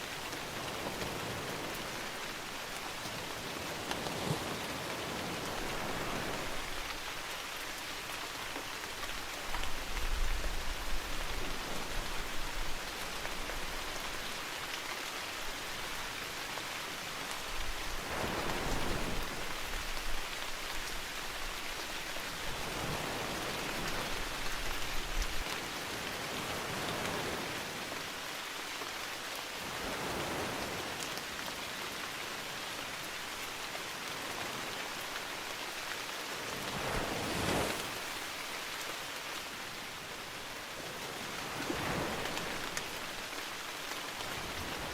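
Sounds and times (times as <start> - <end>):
rain pattering: 0.0 - 44.9
sea waves washing in: 0.4 - 6.8, 18.0 - 20.0, 22.4 - 24.4, 36.4 - 44.9.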